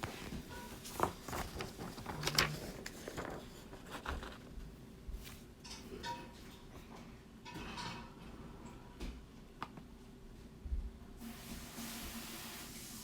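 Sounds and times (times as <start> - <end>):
handling clicks and rustles: 0.0 - 4.5.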